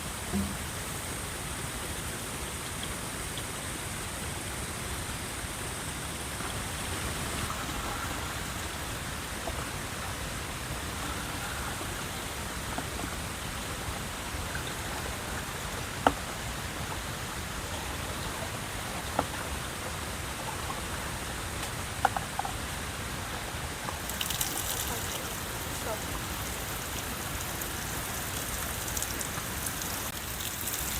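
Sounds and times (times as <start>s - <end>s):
falling water hissing: 23.8s - 30.9s.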